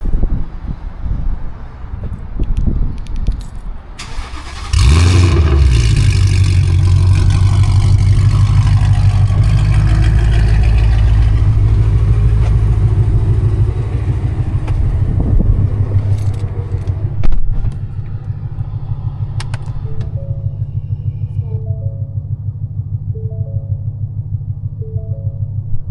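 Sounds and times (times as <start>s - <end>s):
car engine starting and idling: 3.8s - 25.9s
engine rev burst: 4.0s - 21.5s.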